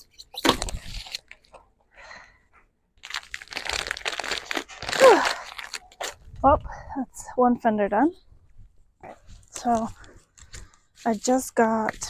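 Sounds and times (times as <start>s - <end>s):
film peeling off crackling: 3.0s - 6.2s.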